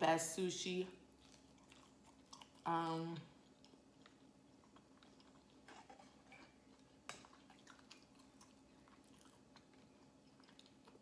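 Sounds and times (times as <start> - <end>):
faint chewing with mouth clicks: 1.0 - 11.0.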